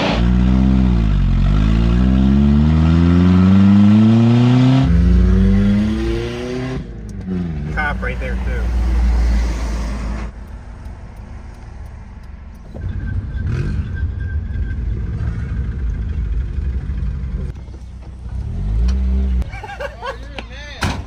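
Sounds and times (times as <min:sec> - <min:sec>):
car engine revving: 0:00.0 - 0:11.9
road noise inside car: 0:00.0 - 0:21.0.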